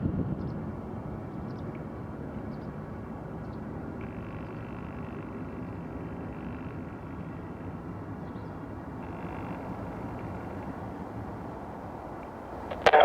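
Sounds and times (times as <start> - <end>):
jet engines rumbling: 8.1 - 13.0
faint high whine: 8.4 - 13.0.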